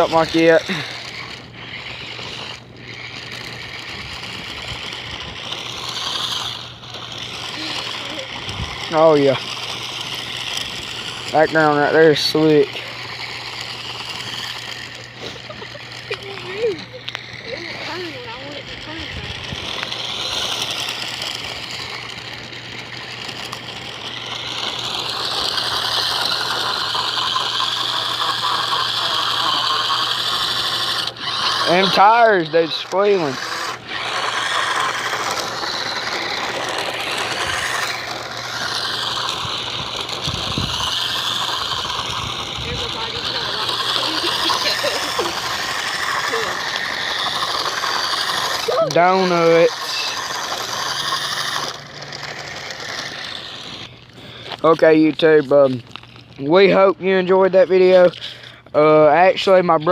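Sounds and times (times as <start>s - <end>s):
tyres hissing on ice: 0.0s - 59.8s
chassis rattling: 0.0s - 59.9s
toy car motor whining: 0.0s - 59.9s
tires squealing: 7.2s - 54.0s.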